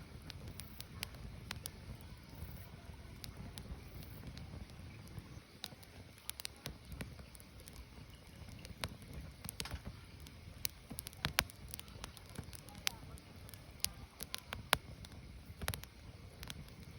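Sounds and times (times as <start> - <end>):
firewood crackling and popping: 0.0 - 16.9
low fire rumble: 0.0 - 16.9.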